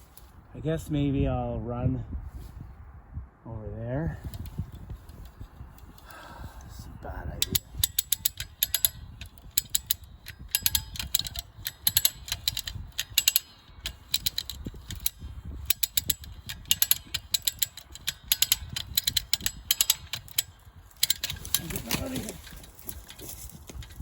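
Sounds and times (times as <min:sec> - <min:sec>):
ratchet winch pawl clicking: 0:04.2 - 0:06.7, 0:07.4 - 0:24.0.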